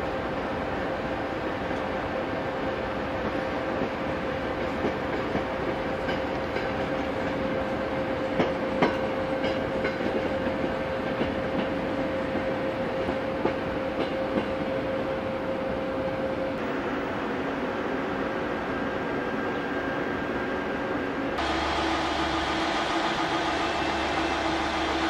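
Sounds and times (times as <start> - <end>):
train coaches rolling on track: 0.0 - 25.0.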